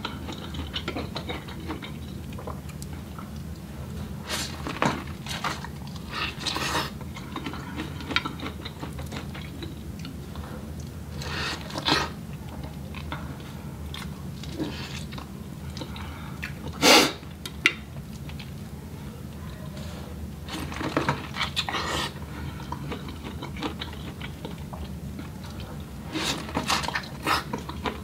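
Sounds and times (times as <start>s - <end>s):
steady low hum: 0.0s - 28.0s
chewing corn on the cob: 20.5s - 28.0s.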